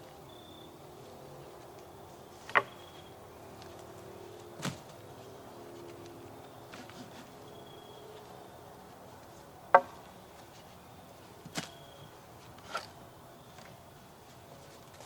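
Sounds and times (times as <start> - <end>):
faint steady background noise: 0.0 - 15.0
sharp knocks: 9.7 - 10.0.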